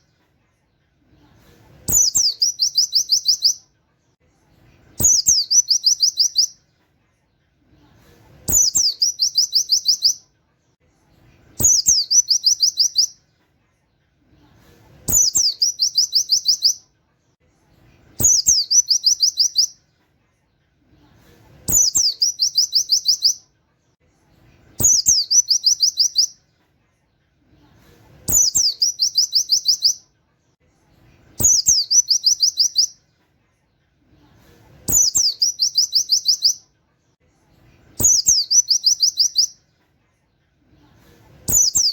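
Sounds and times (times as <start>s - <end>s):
small bird singing trills: 1.8s - 3.7s, 4.9s - 6.6s, 8.4s - 10.3s, 11.5s - 13.2s, 15.0s - 16.9s, 18.1s - 19.8s, 21.7s - 23.5s, 24.7s - 26.4s, 28.3s - 30.1s, 31.3s - 33.0s, 34.9s - 36.7s, 37.9s - 39.6s, 41.4s - 41.9s.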